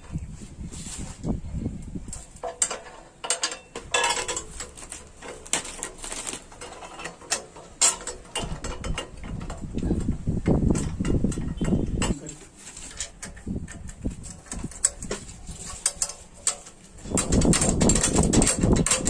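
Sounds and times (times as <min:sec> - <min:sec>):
hand tools clicking on metal: 0:02.1 - 0:19.0.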